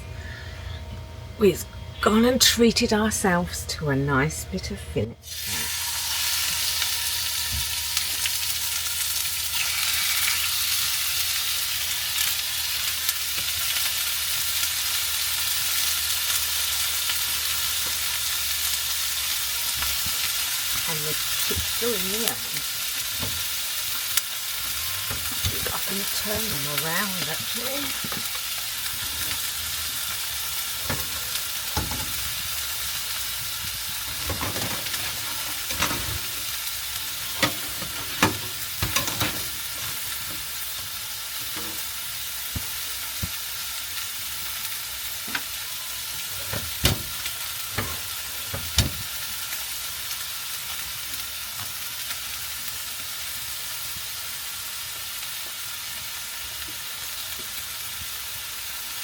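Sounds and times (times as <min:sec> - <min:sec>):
steak sizzling in a frying pan: 0:05.2 - 0:59.0.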